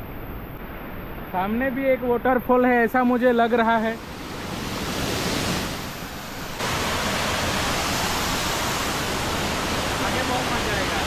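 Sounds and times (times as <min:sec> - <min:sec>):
waterfall rushing: 0:04.0 - 0:11.0.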